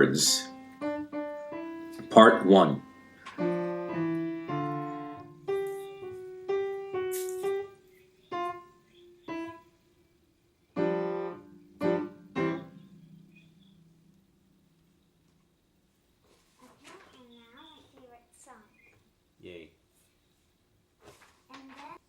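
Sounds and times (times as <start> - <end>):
piano notes and chords: 0.0 - 16.1.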